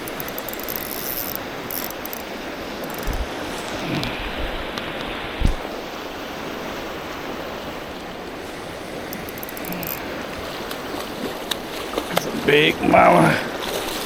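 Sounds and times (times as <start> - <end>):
river water rushing: 0.0 - 14.0
short low thump: 3.0 - 4.6, 5.4 - 5.7.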